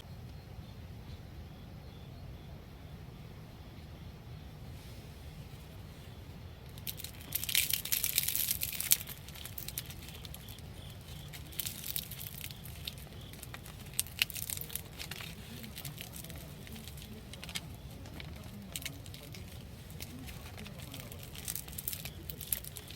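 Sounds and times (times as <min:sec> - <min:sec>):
crinkling and rustling handling: 0:04.8 - 0:22.9
sharp clicks and crackles: 0:06.7 - 0:22.9.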